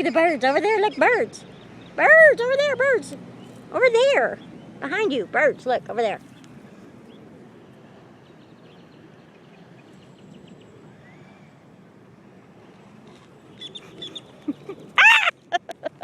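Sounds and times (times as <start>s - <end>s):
outdoor background noise: 0.0s - 16.0s
birds clucking calls: 12.6s - 16.0s.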